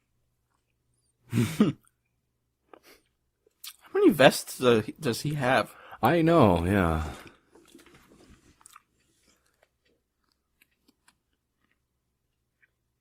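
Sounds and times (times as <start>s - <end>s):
person chewing: 0.3s - 1.2s, 1.8s - 3.9s, 6.5s - 13.0s.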